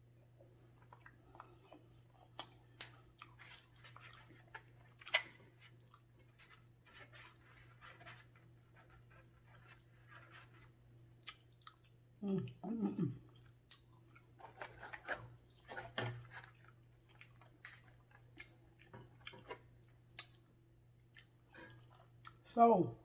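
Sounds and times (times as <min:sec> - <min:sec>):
person chewing: 0:00.7 - 0:06.6, 0:11.2 - 0:22.4.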